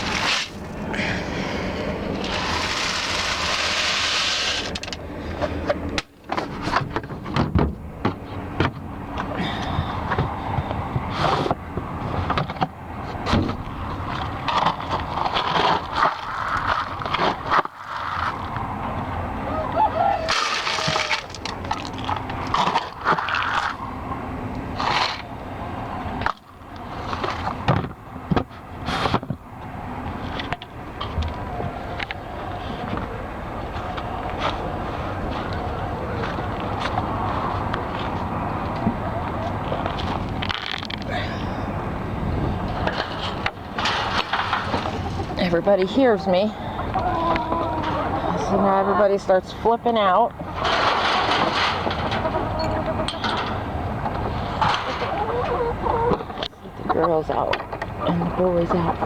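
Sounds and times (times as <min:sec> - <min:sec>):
trailer rattling as it rolls: 0:00.0 - 0:59.0
trailer knocks and clanks: 0:33.7 - 0:47.0, 0:48.4 - 0:59.0.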